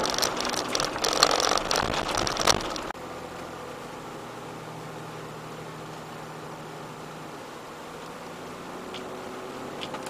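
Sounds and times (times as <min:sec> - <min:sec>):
clatter of clicks and knocks: 0:00.0 - 0:02.9
car engine and tyres droning: 0:00.0 - 0:10.0.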